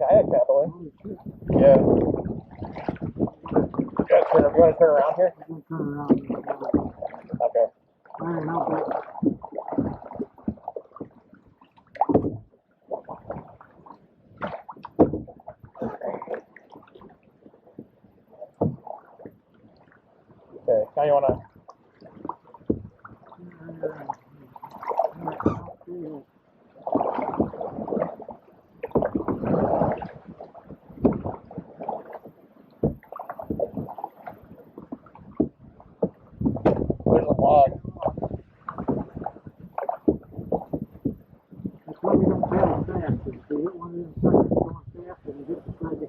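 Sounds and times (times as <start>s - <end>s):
paddle splashing in water: 0.0s - 46.0s
knocks and thumps: 1.3s - 4.8s, 6.0s - 7.6s, 9.2s - 11.2s, 11.9s - 12.5s, 14.4s - 16.0s, 18.6s - 19.4s, 21.2s - 21.5s, 22.2s - 23.1s, 28.8s - 30.0s, 31.0s - 31.7s, 32.8s - 37.3s, 38.0s - 42.9s
low thump: 12.0s - 12.5s, 14.4s - 15.8s, 22.6s - 23.0s, 32.8s - 33.9s, 35.3s - 37.3s.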